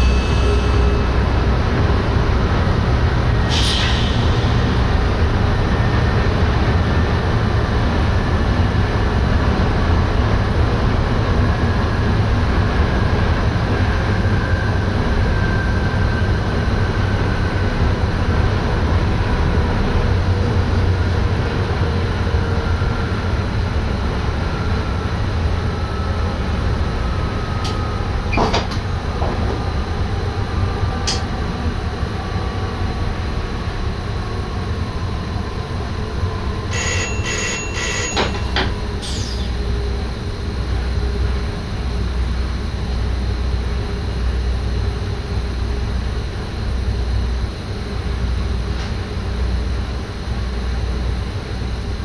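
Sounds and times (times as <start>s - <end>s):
brief high-pitched sound: 0.0s - 1.6s
train rumbling in driver's cab: 0.0s - 52.0s.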